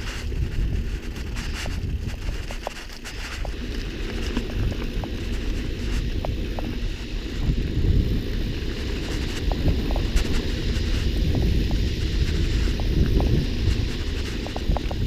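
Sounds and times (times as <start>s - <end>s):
mountain bike rolling on dirt: 0.0s - 15.0s
wind buffeting microphone: 0.0s - 15.0s.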